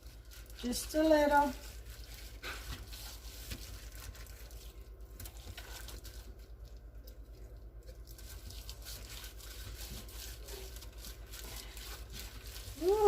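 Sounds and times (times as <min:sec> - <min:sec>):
hands spreading paste on meat: 0:00.0 - 0:06.3.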